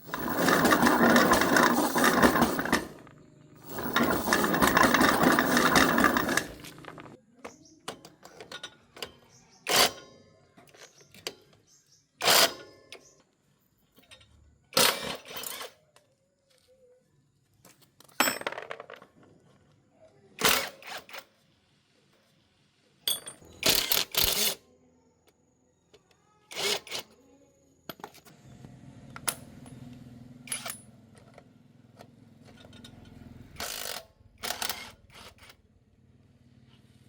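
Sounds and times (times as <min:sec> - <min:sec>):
metal parts and tools clinking: 0:00.0 - 0:07.2, 0:08.1 - 0:11.4, 0:23.0 - 0:24.6, 0:30.5 - 0:31.4.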